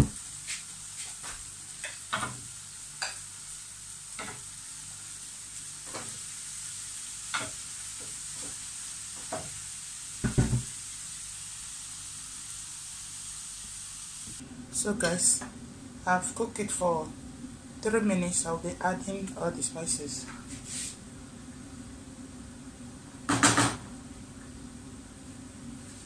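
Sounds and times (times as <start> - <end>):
vegetables sizzling in oil: 0.0 - 14.4
knocks against a pan: 10.2 - 10.7, 23.3 - 23.8.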